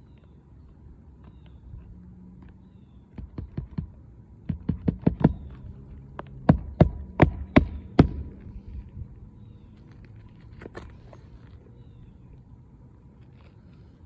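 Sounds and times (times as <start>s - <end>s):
hammer driving nails into shingle: 3.2s - 5.7s, 6.4s - 8.4s.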